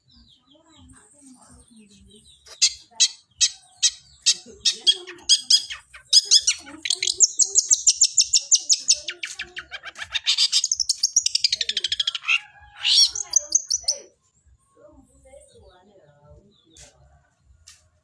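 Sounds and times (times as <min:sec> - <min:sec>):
bird singing sharp chirps: 0:02.0 - 0:14.1
bird chattering run of notes: 0:02.3 - 0:14.1.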